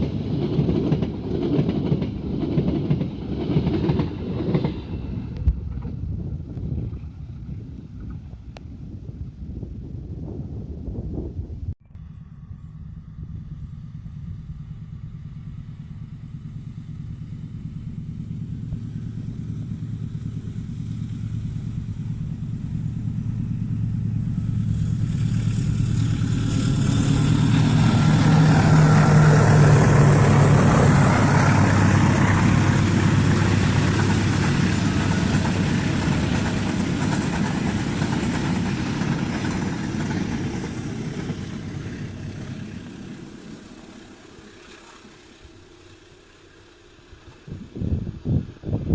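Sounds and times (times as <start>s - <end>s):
rushing of train wheels: 0.0s - 8.4s, 18.2s - 47.7s
locomotive engine drone: 0.0s - 48.9s.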